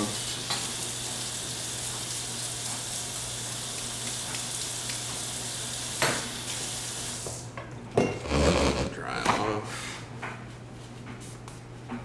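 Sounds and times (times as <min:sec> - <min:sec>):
water running from sink tap: 0:00.0 - 0:07.5.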